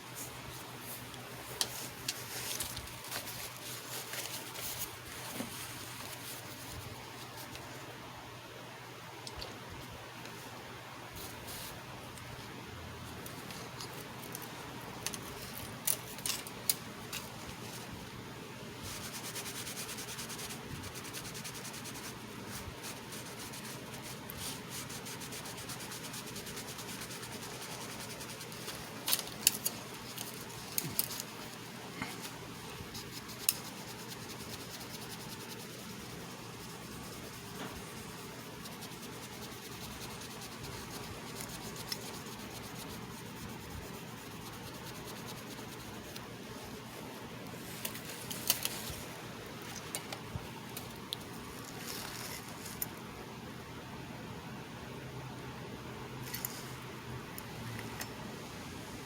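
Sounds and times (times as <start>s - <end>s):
steady hiss: 14.6s - 53.3s
rubbing and scraping: 18.8s - 46.3s.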